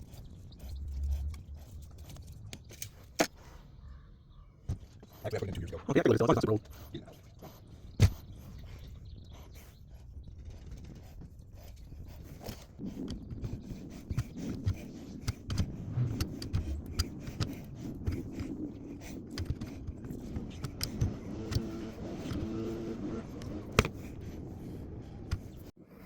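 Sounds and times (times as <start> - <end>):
small clicks: 12.4 - 24.0.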